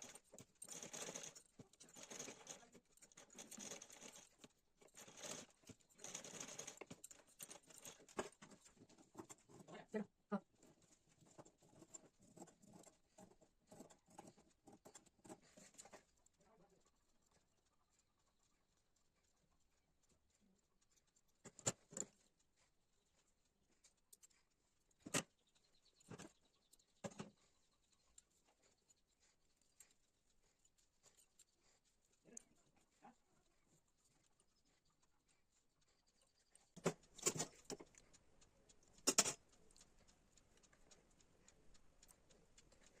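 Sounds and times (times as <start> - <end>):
soft rustling and pattering: 0.0 - 43.0
sharp clicks: 36.7 - 43.0.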